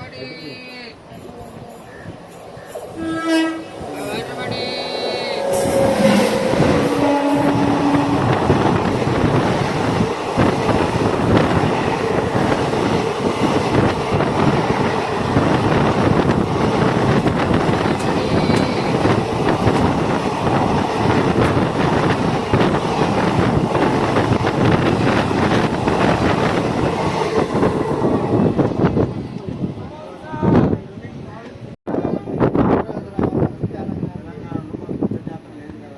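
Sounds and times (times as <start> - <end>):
train passing at high speed: 0.0 - 35.8
train horn: 2.9 - 8.6, 18.0 - 19.1.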